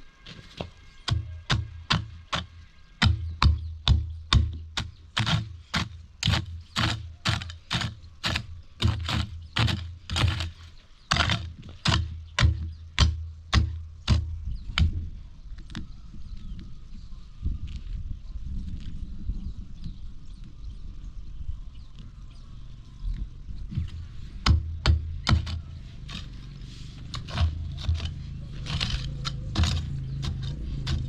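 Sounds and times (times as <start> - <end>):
hand tool chopping into soil: 0.3 - 15.0, 23.8 - 26.4, 27.0 - 31.0.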